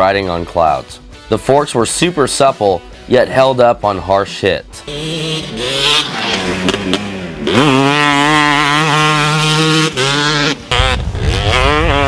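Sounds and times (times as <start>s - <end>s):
two-stroke motorcycle engine revving: 4.8s - 12.0s.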